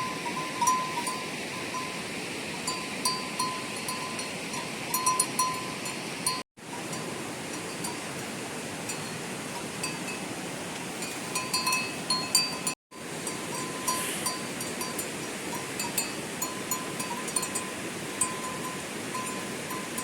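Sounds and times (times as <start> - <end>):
small bells clinking: 11.0 - 20.0.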